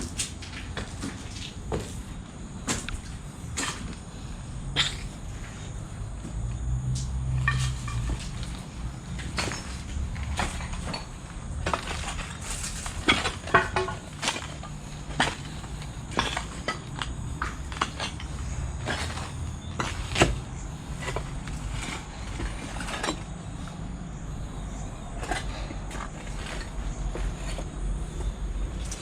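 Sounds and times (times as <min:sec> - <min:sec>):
steady low rumble: 0:00.0 - 0:29.0
clicks knocks and crunches: 0:09.2 - 0:23.3.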